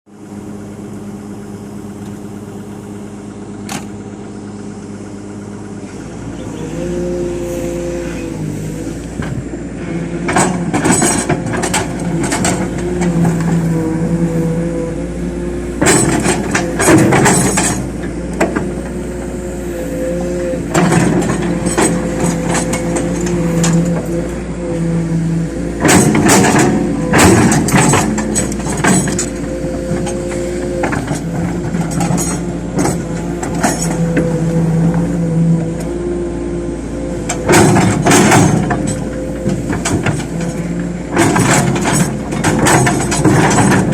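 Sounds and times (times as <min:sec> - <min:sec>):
excavator diesel engine running: 0:00.1 - 0:43.9.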